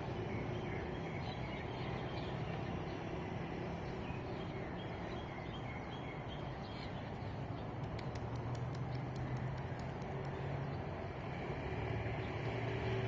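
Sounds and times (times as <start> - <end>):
birds chirping: 0.0 - 11.4
distant traffic hum: 0.0 - 13.0
fast high ticks: 7.8 - 10.4.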